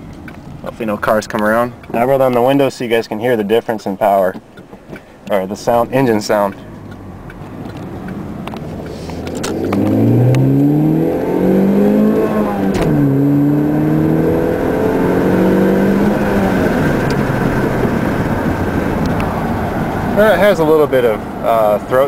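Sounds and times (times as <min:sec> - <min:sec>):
car engine accelerating: 0:05.4 - 0:22.0.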